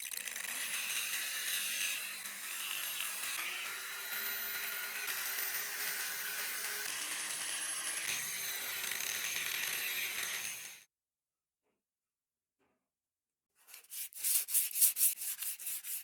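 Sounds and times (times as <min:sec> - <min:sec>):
electric power tool whining: 0:00.5 - 0:10.8.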